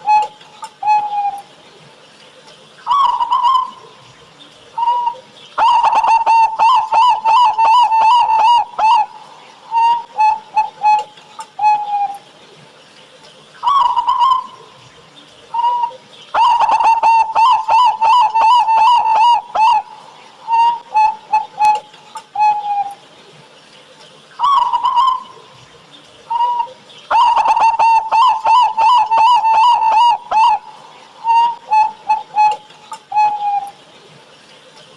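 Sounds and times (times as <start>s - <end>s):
doves cooing: 0.0s - 12.4s, 13.6s - 23.1s, 24.4s - 34.7s.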